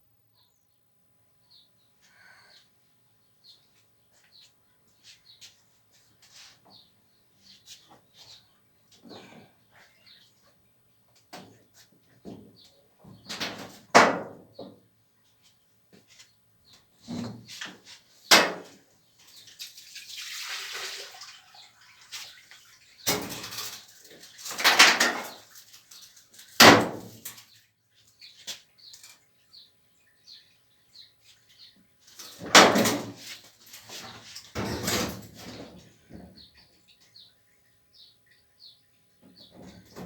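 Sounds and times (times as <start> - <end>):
hard parts knocking and scraping: 32.2 - 35.8.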